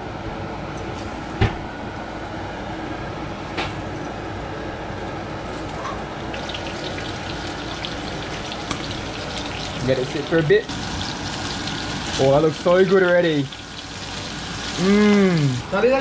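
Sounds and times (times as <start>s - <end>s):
food sizzling in hot oil: 3.2s - 15.7s.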